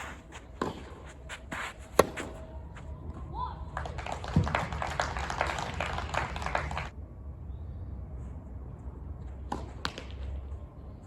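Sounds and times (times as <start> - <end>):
spectators clapping: 3.7 - 6.9.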